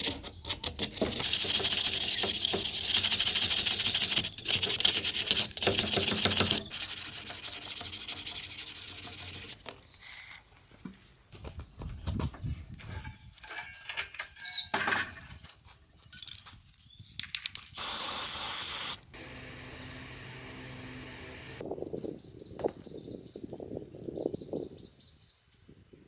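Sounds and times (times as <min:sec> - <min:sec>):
loud spray hiss: 0:17.8 - 0:19.0.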